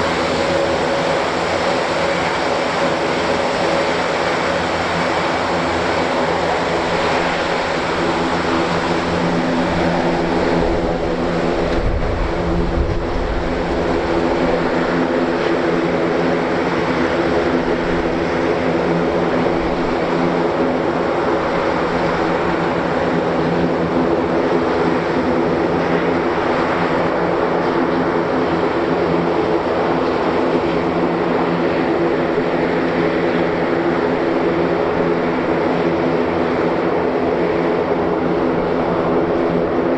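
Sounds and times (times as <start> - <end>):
turboprop engines droning: 0.0 - 39.9
low rumble: 9.9 - 14.6.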